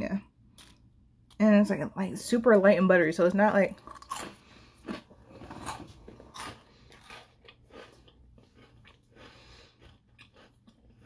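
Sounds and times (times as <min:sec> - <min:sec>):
person chewing crisp biscuit: 0:03.8 - 0:11.0.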